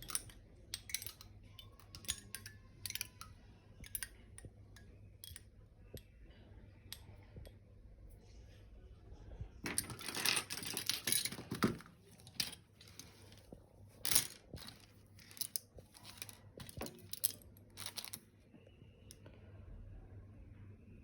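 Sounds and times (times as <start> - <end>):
rustling and crinkling handling sounds: 9.6 - 18.2.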